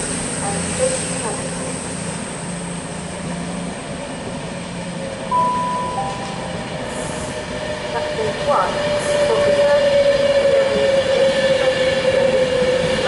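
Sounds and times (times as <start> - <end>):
train wheels rumbling on rails: 0.0 - 13.0
high steady tone: 5.3 - 7.6.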